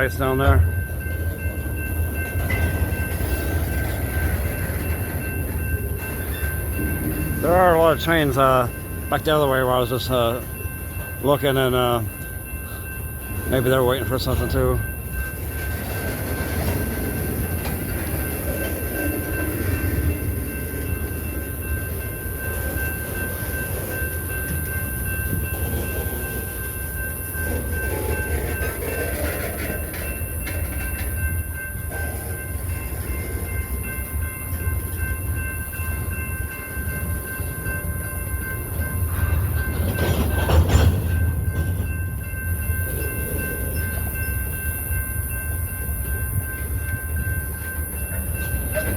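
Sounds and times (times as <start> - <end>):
freight train rumbling: 0.0 - 48.9.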